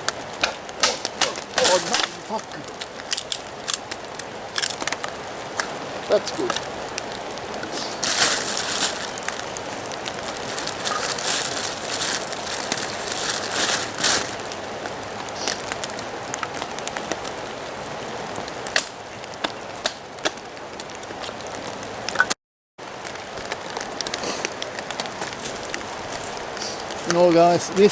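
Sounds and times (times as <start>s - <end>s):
rustling surges: 0.0s - 14.5s
rain falling: 0.0s - 27.9s.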